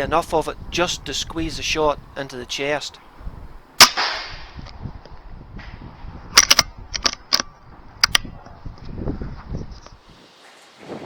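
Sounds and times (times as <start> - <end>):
air rifle shot with echo: 3.8 - 4.6
small sharp clicks and knocks: 6.4 - 8.3.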